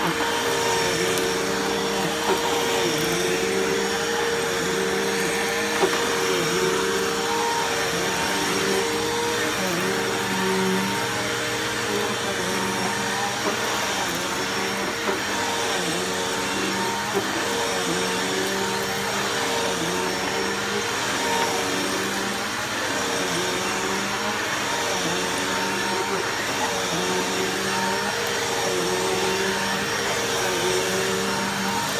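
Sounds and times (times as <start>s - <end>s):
vacuum cleaner running: 0.0s - 31.9s.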